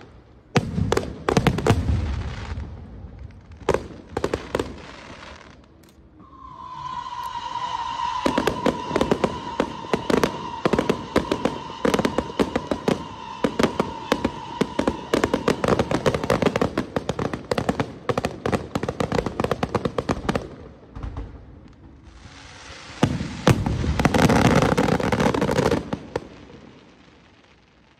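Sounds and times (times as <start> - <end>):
fireworks bangs: 0.0 - 27.9
fireworks crackling: 0.0 - 27.9
steady whistling tone: 6.1 - 16.6.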